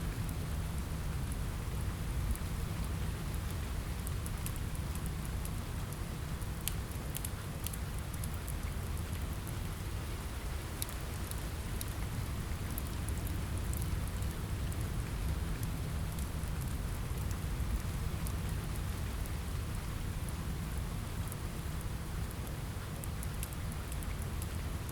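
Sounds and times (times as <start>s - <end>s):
rain on window glass: 0.2s - 24.9s
wood fire crackling: 10.6s - 20.5s.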